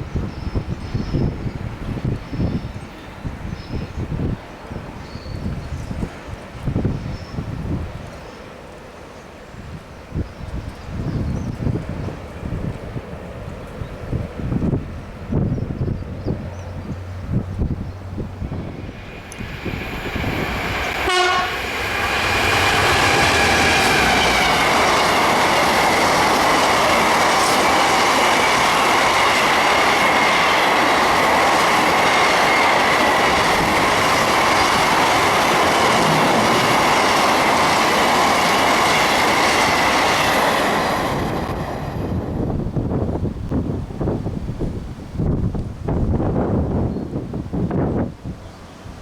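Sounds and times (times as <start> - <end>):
train wheels on rails: 0.0 - 44.2
high whine: 18.2 - 38.4.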